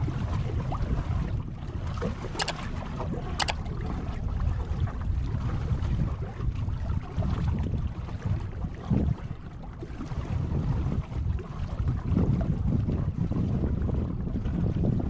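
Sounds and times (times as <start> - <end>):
short sharp ticks: 2.4 - 2.6.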